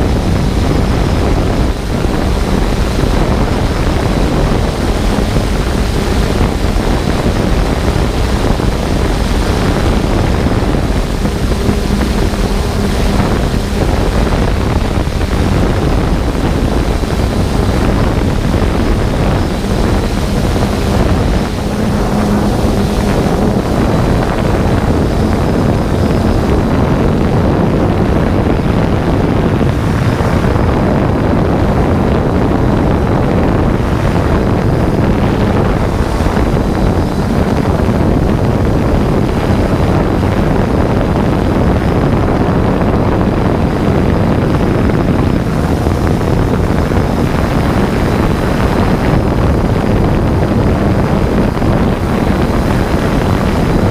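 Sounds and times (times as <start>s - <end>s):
drone propellers rushing: 0.0s - 53.9s
faint steady hum: 0.0s - 53.9s
wind on microphone: 0.0s - 53.9s.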